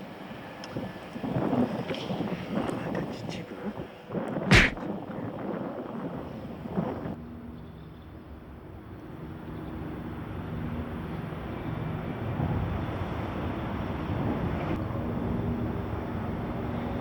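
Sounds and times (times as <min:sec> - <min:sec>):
wind on microphone: 0:00.3 - 0:07.2.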